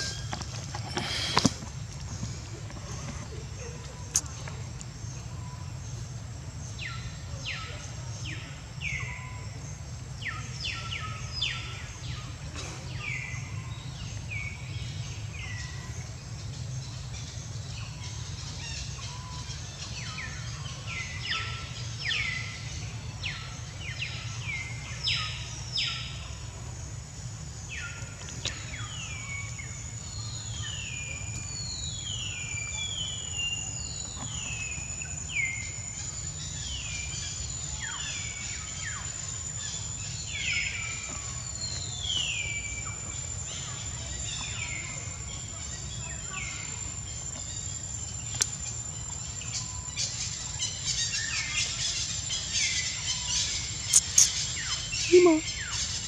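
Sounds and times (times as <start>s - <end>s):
birds calling: 0.0s - 26.7s, 27.6s - 56.0s
high insect whine: 0.0s - 56.0s.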